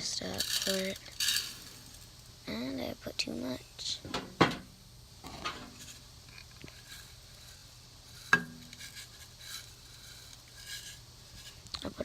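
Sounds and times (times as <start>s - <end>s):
rustling and scraping of seed: 0.0s - 2.4s, 5.2s - 12.0s.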